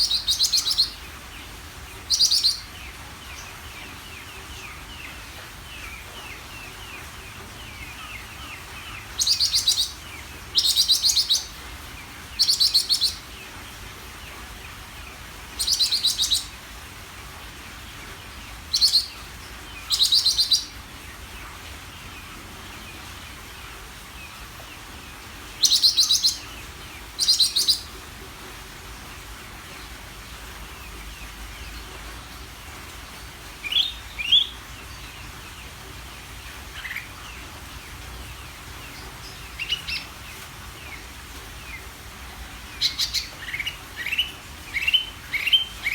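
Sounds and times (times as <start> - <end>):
faint bird twittering: 0.0 - 1.1, 2.1 - 2.8, 7.7 - 11.6, 12.3 - 13.3, 15.6 - 16.6, 19.8 - 20.8, 25.6 - 26.6, 27.2 - 27.9, 33.2 - 35.3, 42.8 - 45.9
bird singing buzzy trills: 0.0 - 13.6, 15.5 - 16.6, 18.3 - 20.8, 25.6 - 27.9, 33.1 - 35.8, 42.6 - 45.9.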